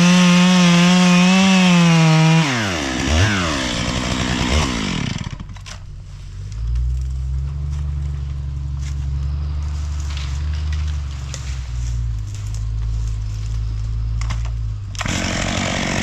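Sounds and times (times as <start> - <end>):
chainsaw revving and idling: 0.0 - 5.8, 14.2 - 16.0.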